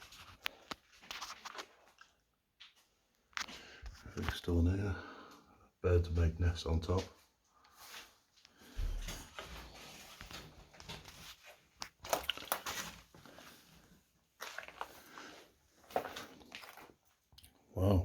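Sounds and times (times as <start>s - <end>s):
crunching and rustling: 9.4s - 17.2s.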